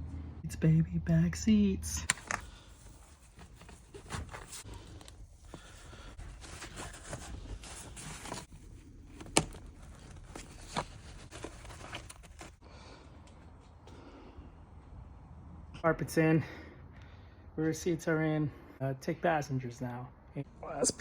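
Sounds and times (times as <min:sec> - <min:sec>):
fabric and trim rustling: 0:02.2 - 0:12.6.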